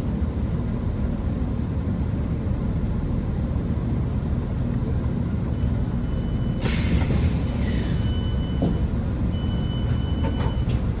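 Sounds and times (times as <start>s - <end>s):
diesel train idling: 0.0s - 11.0s
short air hisses: 6.6s - 8.0s.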